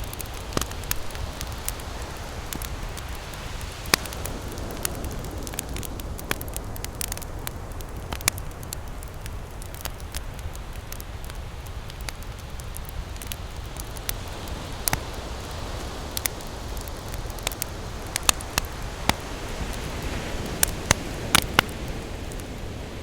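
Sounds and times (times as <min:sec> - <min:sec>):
ocean surf: 0:00.0 - 0:08.8, 0:13.4 - 0:23.0
campfire crackling and popping: 0:00.0 - 0:23.0.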